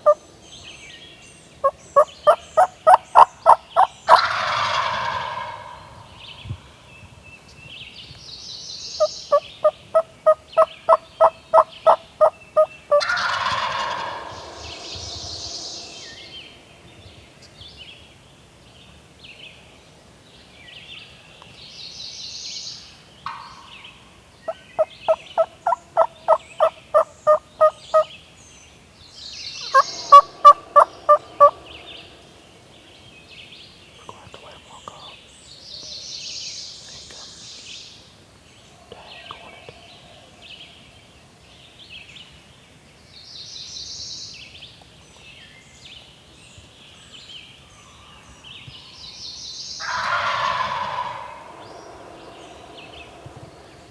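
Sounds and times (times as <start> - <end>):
distant turkey gobbles: 0.0 - 0.2, 1.6 - 6.2, 9.3 - 16.3, 23.3 - 28.1, 29.6 - 32.3, 49.8 - 53.9
turkey yelps: 1.6 - 5.7, 12.2 - 14.4, 24.5 - 28.1, 29.6 - 31.6, 49.8 - 51.6
turkey rattling gobble: 1.6 - 6.0, 10.0 - 14.7, 24.5 - 28.1, 29.6 - 31.6, 49.8 - 51.6.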